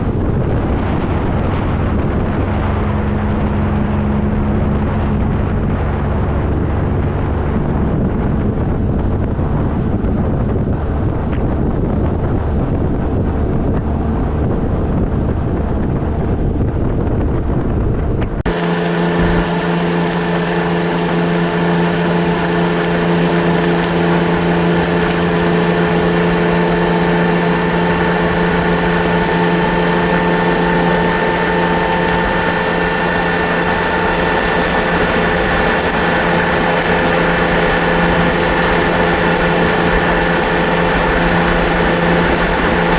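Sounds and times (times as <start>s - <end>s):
wind rumble on microphone: 0.0s - 42.9s
motorcycle engine humming: 18.5s - 42.9s.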